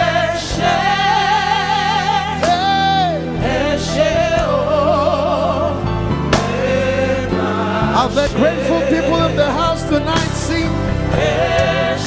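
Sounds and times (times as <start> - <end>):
band bass and keys: 0.0 - 12.0.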